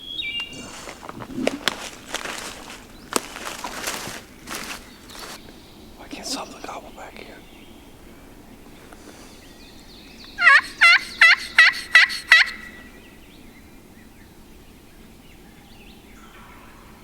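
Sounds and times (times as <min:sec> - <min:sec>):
crow call caws: 0:10.2 - 0:13.2.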